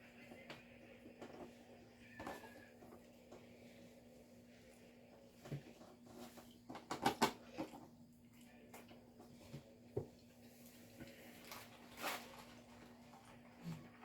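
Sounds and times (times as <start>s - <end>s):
food and packaging clicks and taps: 5.4s - 7.9s.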